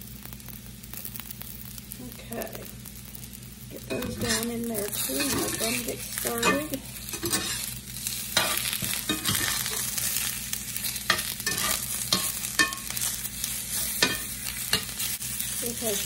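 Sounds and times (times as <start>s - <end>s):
potatoes sizzling in oil: 0.0s - 16.0s
fork scraping a pan: 3.9s - 15.6s.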